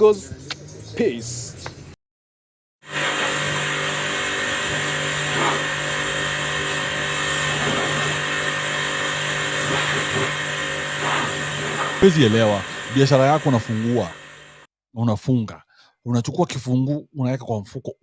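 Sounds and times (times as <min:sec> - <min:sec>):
engine humming steadily: 0:03.2 - 0:14.6.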